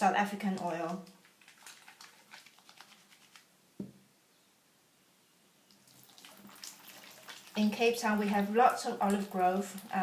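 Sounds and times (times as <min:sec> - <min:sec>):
soft knock: 0:03.8 - 0:04.0.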